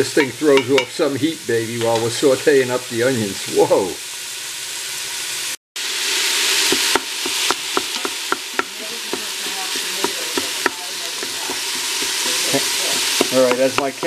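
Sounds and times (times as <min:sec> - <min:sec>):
onions and beef sizzling: 0:00.0 - 0:14.0
wooden spoon knocking on pot: 0:00.2 - 0:00.9, 0:06.7 - 0:14.0.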